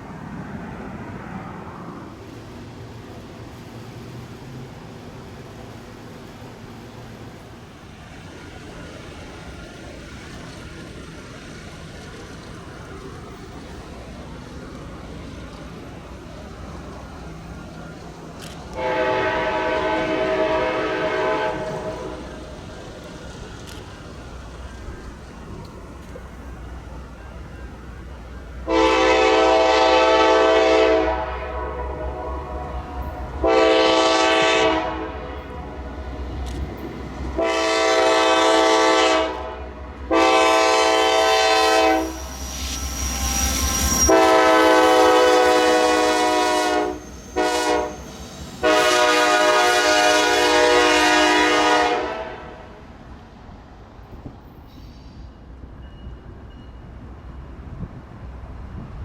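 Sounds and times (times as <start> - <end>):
locomotive air horn blasts: 18.8 - 22.4, 28.7 - 35.5, 37.4 - 52.7.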